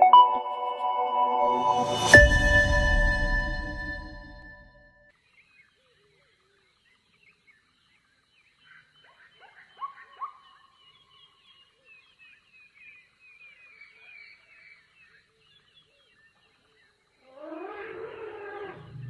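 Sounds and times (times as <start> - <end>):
drawn-out sliding pitch sound: 0.0 - 4.8.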